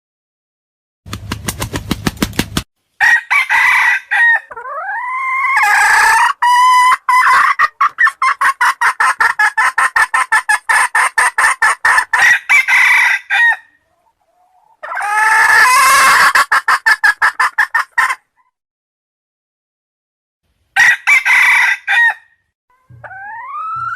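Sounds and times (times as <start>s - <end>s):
chickens clucking rapidly: 1.1s - 2.7s, 3.5s - 18.5s, 22.8s - 23.9s
chicken crowing: 3.0s - 9.1s, 11.8s - 13.8s, 14.4s - 16.6s, 20.8s - 23.9s.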